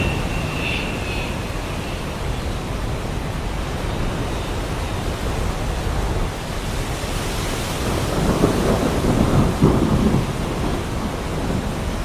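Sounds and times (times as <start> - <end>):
thunderclaps: 0.0 - 4.7, 7.8 - 12.0
heavy rain hissing: 0.0 - 12.0.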